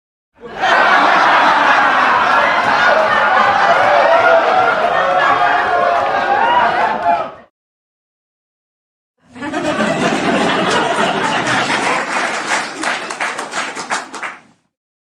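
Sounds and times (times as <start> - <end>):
audience laughing: 0.4 - 7.2, 9.2 - 14.4
hand clapping: 10.7 - 14.6.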